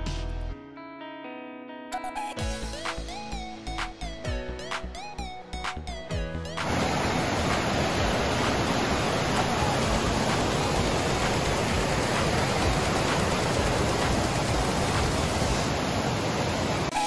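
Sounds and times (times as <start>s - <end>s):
falling water rushing: 6.6s - 17.0s.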